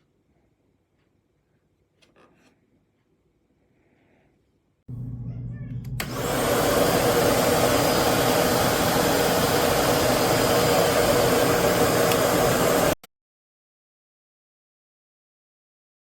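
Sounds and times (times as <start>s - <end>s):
upright vacuum cleaner running: 5.8s - 13.0s.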